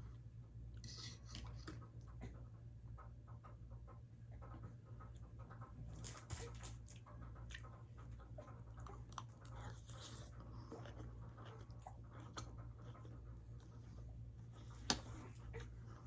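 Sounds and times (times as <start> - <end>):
steady low hum: 0.0 - 16.0
person chewing food: 5.0 - 16.0.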